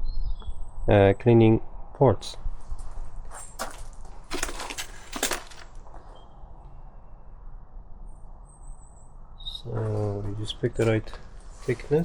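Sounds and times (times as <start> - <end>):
tool set clicks and rattles: 3.6 - 5.8.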